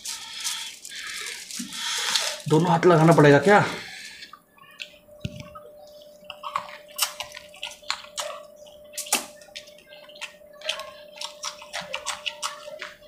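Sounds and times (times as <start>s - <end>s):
faint steady hum: 0.0s - 13.0s
wet chewing and lip-smacking: 4.0s - 13.0s.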